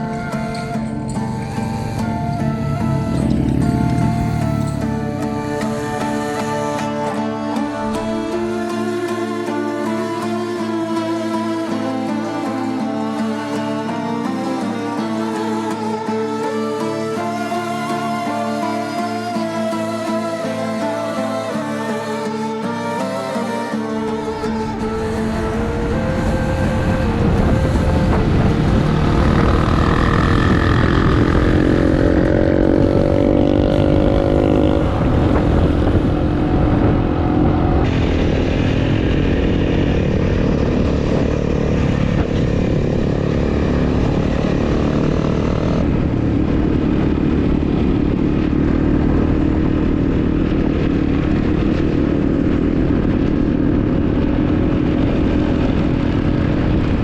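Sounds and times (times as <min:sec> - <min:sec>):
wind and road noise: 0:00.0 - 0:08.8, 0:23.5 - 0:57.0
motorcycle engine running: 0:00.8 - 0:06.8, 0:26.8 - 0:57.0.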